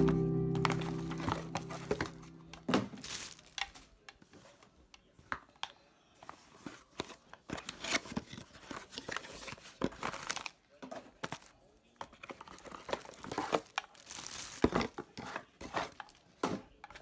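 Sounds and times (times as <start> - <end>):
background music: 0.0 - 2.9
packaging crinkling and tearing: 12.6 - 14.9.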